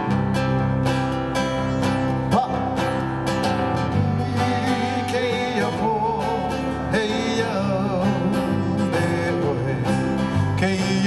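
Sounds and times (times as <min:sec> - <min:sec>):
strummed acoustic guitar chords: 0:00.0 - 0:11.0.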